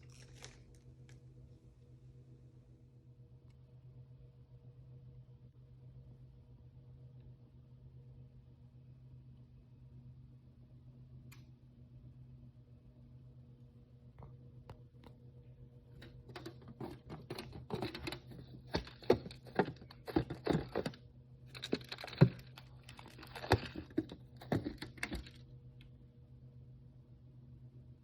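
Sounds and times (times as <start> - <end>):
packaging crinkling and rustling: 0.0 - 1.2, 16.3 - 25.4.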